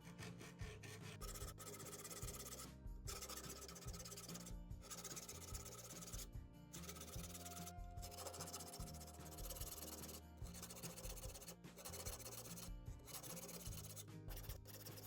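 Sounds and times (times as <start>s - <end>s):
faint background music: 0.0s - 15.0s
file rasping on saw teeth: 0.0s - 15.0s.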